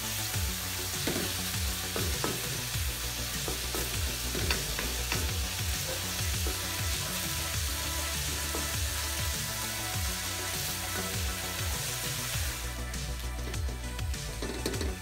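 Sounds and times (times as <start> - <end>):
vegetables sizzling in a wok: 0.0 - 15.0
spatula scraping and knocking pan: 1.0 - 2.7, 3.3 - 9.3, 14.3 - 15.0.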